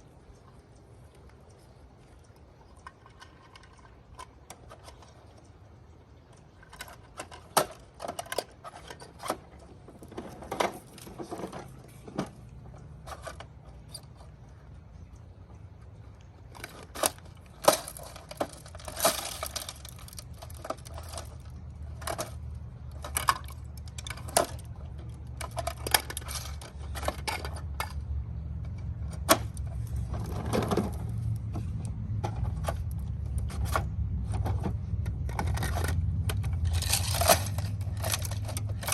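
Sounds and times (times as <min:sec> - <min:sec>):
plastic toy parts clattering: 0:06.5 - 0:13.8, 0:16.5 - 0:28.1, 0:28.7 - 0:38.9
low rolling rumble: 0:09.4 - 0:38.9.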